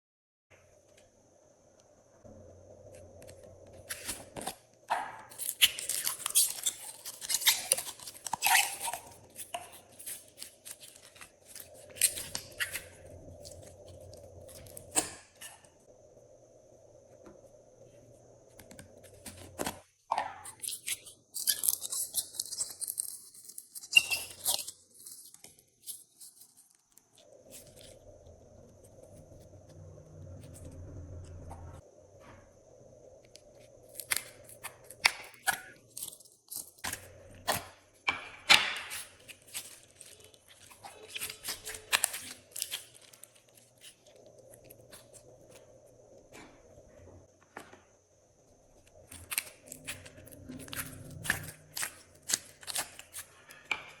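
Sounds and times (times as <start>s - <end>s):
slime squishing and crackling: 3.8s - 15.6s, 38.5s - 45.7s, 49.0s - 54.0s.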